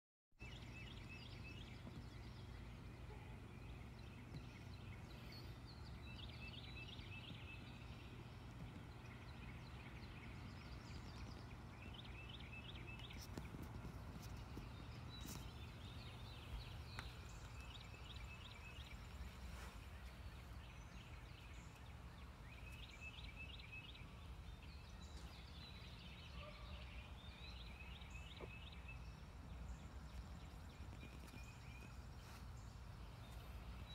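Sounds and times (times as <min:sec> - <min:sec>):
low steady hum: 0:00.4 - 0:33.9.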